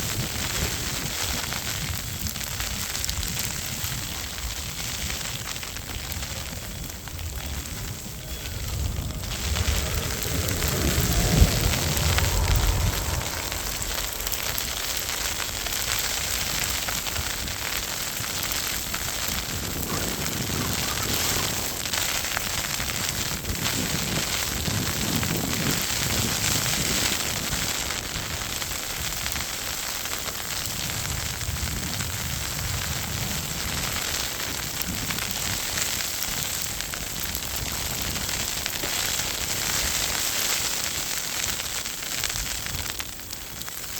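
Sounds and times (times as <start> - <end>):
gusting wind rumble: 0.0 - 29.7.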